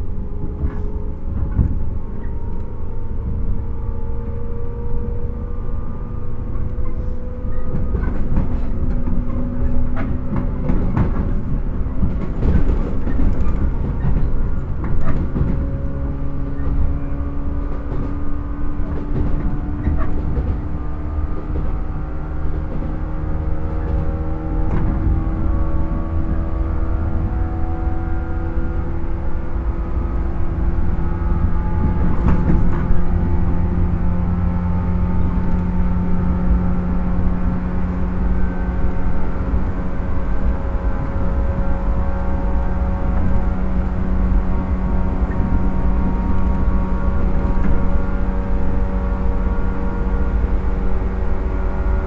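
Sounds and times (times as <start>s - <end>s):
train running rumble: 0.0s - 52.0s
rail-joint clicks: 6.6s - 20.8s.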